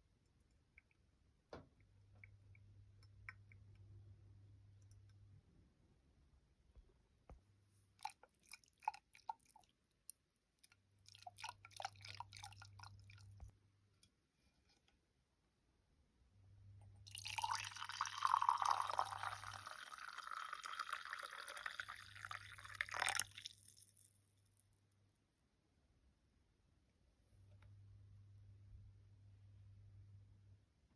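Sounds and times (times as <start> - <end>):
liquid pouring: 8.0 - 9.7, 11.0 - 13.4, 17.1 - 24.1.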